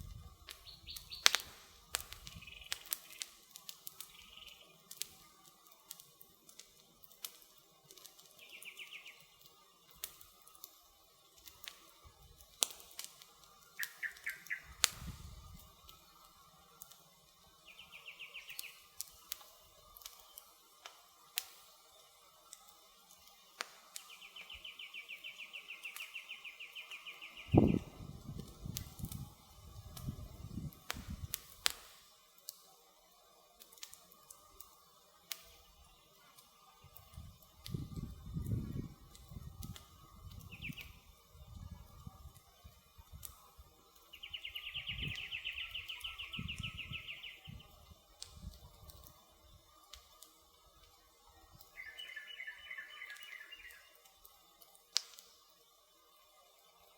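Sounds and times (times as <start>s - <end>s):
campfire crackling and popping: 0.0s - 56.9s
bird trilling: 13.8s - 14.8s, 44.2s - 47.5s, 51.8s - 53.9s.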